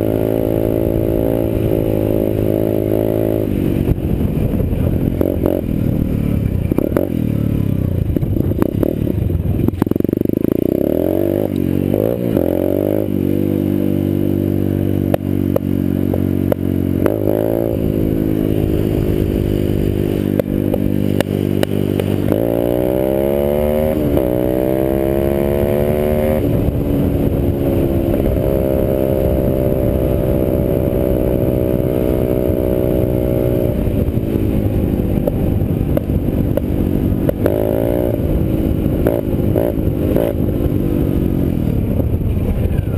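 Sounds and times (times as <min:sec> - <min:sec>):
dirt bike engine revving: 0:00.0 - 0:42.3.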